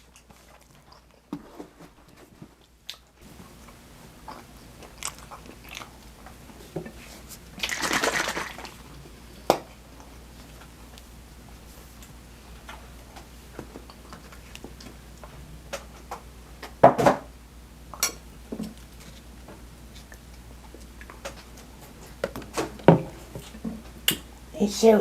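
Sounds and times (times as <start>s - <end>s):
chewing: 0.0s - 11.1s, 12.6s - 15.3s, 18.7s - 22.2s.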